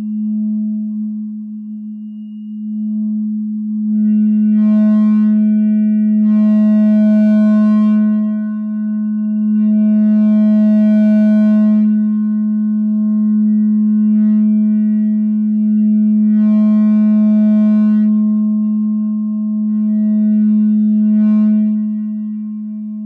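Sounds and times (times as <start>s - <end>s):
mixer feedback drone: 0.0s - 23.0s.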